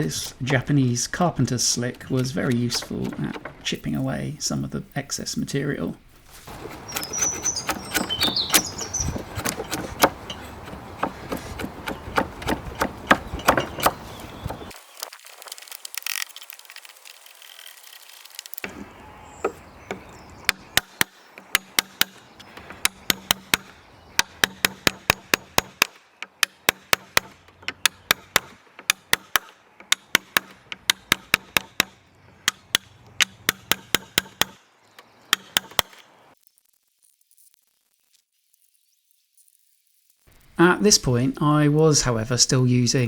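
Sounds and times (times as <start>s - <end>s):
chisel chopping wood: 2.1s - 3.7s, 6.5s - 14.7s, 18.6s - 34.6s, 35.3s - 36.0s.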